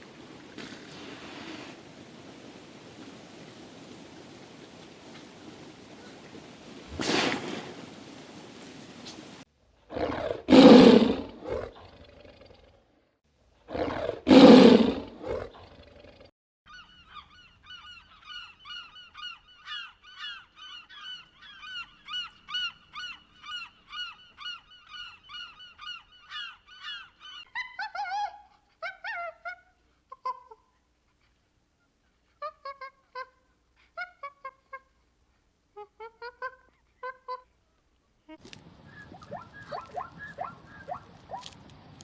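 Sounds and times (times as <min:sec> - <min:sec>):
harsh animal calls: 0:38.4 - 0:42.0.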